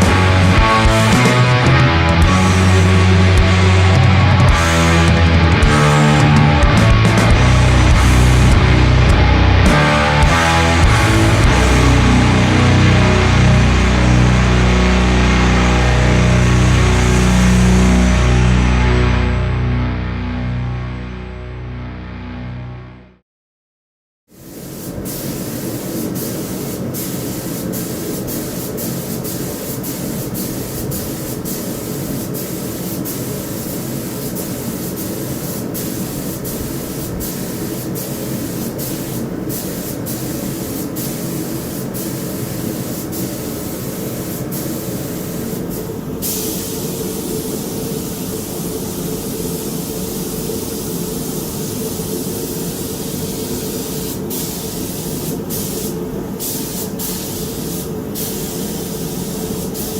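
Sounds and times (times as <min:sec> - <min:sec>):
spray gun hissing: 0:00.0 - 0:18.3, 0:24.3 - 0:59.9
steady low hum: 0:00.0 - 0:23.1.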